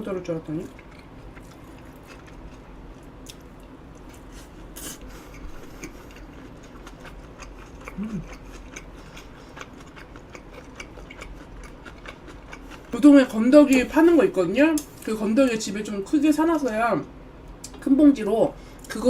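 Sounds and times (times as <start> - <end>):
person chewing food: 0.7 - 13.0.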